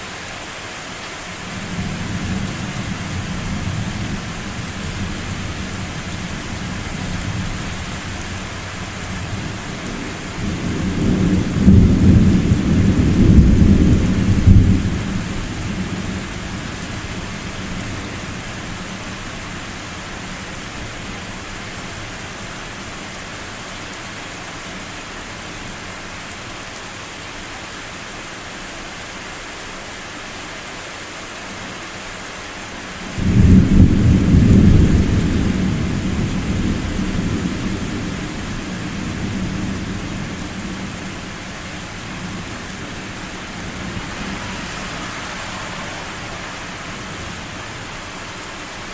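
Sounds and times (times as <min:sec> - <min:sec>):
steady rain: 0:00.0 - 0:48.9
thunder rumbling: 0:01.6 - 0:17.3, 0:33.2 - 0:48.2.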